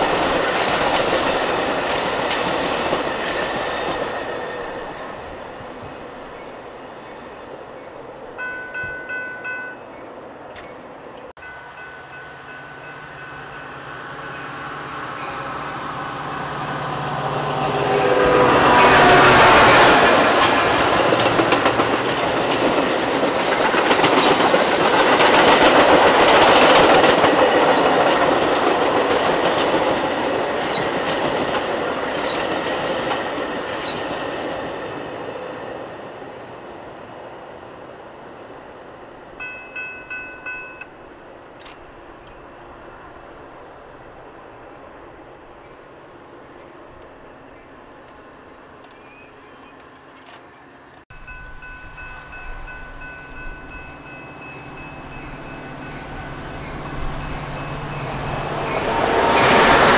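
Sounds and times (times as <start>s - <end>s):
train wheels clattering on rails: 0.0s - 6.4s, 17.6s - 35.9s
train horn: 11.6s - 20.4s.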